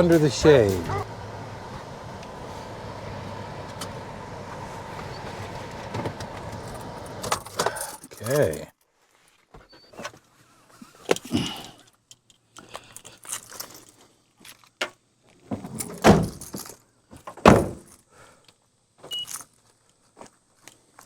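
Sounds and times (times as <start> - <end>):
car doors shutting: 0.0 - 7.9
keys jangling: 12.8 - 14.0.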